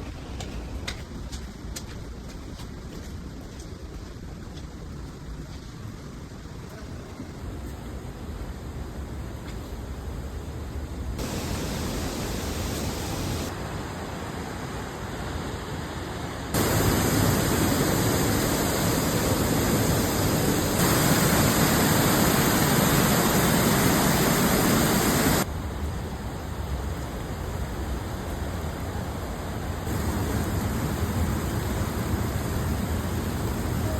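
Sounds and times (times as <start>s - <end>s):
rushing waterfall: 11.2s - 33.9s.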